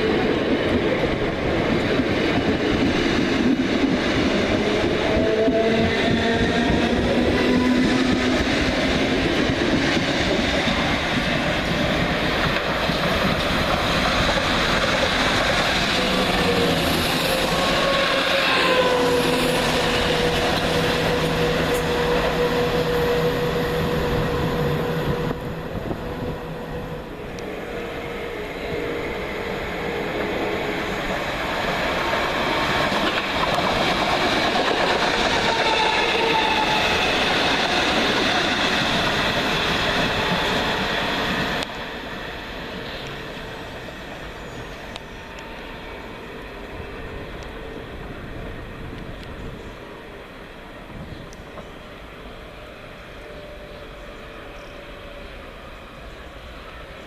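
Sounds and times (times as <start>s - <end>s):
train wheels rumbling on rails: 0.0s - 57.0s
train motor whine: 12.6s - 31.5s.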